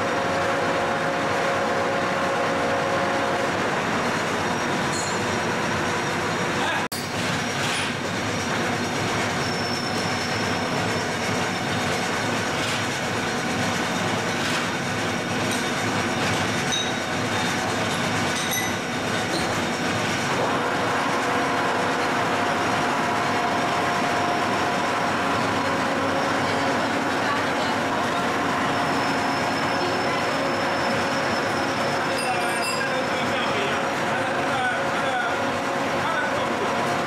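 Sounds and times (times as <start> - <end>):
milling machine running: 0.0 - 37.0.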